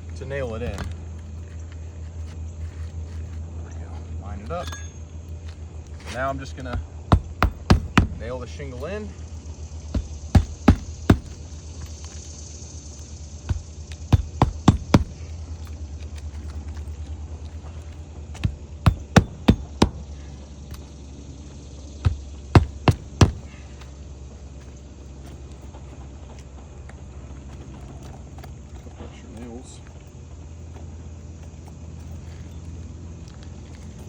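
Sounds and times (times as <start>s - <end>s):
low steady hum: 0.0s - 34.0s
hammer striking nails: 6.6s - 8.4s, 9.9s - 11.6s, 13.5s - 15.3s, 18.4s - 20.0s, 22.0s - 23.6s.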